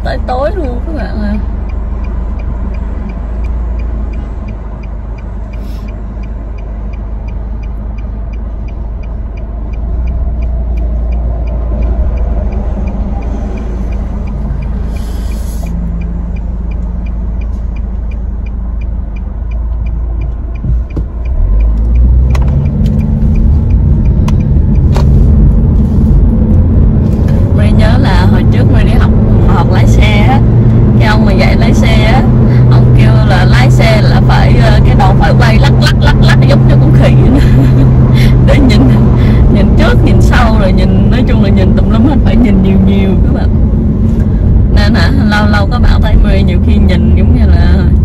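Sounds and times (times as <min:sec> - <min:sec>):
car engine and cabin rumble: 0:00.0 - 0:48.0
faint regular ticking: 0:00.0 - 0:48.0.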